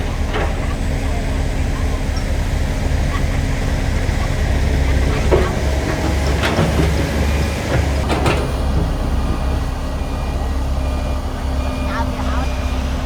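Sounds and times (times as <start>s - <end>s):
diesel construction machinery running: 0.0s - 13.0s
metal clanks and scrapes: 4.8s - 9.4s.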